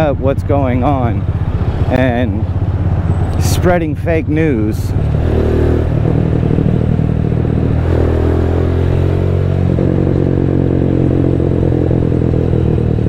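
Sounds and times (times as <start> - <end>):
motorcycle exhaust: 0.8 - 3.5, 5.0 - 13.0.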